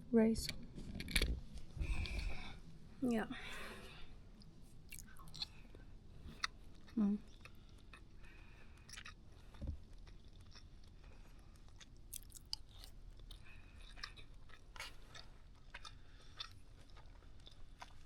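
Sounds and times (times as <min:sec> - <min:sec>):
person chewing food: 0:00.7 - 0:02.8, 0:03.9 - 0:18.0
mouth clicks and smacks: 0:04.4 - 0:05.6.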